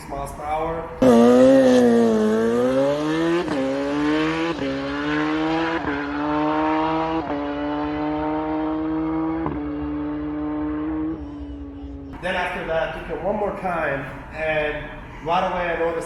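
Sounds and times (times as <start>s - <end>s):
motorcycle engine accelerating hard: 1.0s - 12.2s.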